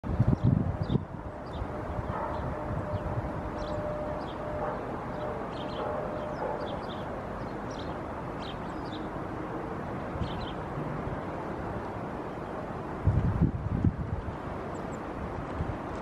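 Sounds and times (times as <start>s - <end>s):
small birds chirping: 0.3s - 9.2s, 10.2s - 10.7s.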